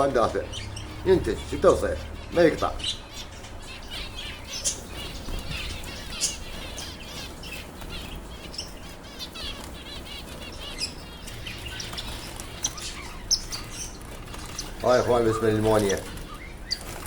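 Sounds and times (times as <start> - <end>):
finches chirping: 0.0 - 17.0
wings fluttering: 3.6 - 17.0.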